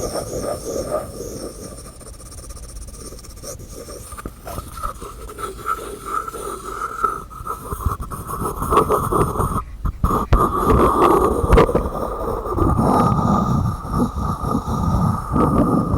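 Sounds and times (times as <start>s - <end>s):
scraping rub: 0.0s - 6.4s.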